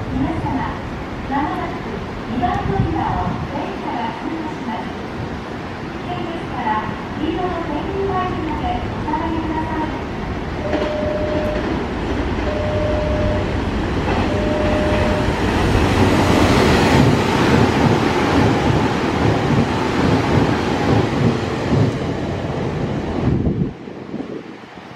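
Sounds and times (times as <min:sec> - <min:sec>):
train wheels rumbling on rail: 0:00.0 - 0:24.9
short beeps: 0:10.6 - 0:11.8, 0:12.5 - 0:13.6, 0:14.2 - 0:15.4.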